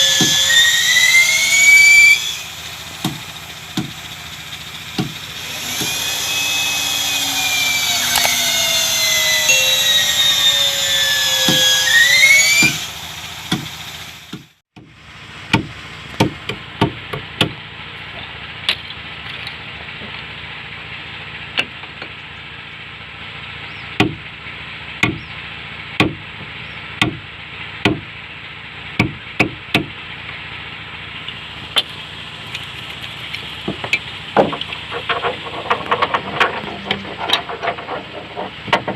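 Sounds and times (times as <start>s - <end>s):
power tool whining: 0.0s - 14.5s.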